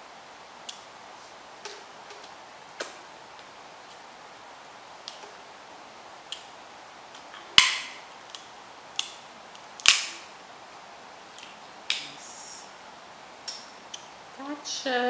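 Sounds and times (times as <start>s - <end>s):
crab shells cracking: 7.1s - 10.3s.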